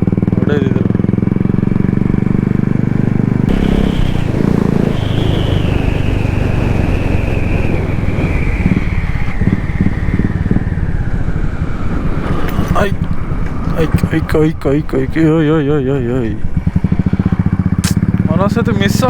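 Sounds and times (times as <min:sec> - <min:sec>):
motorcycle engine running: 0:00.0 - 0:19.0
faint high whine: 0:03.5 - 0:11.2.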